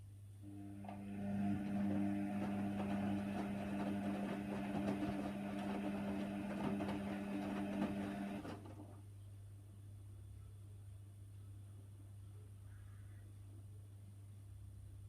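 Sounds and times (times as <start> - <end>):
washing machine motor hum: 0.4 - 9.0
laundry and water churning: 0.8 - 8.8.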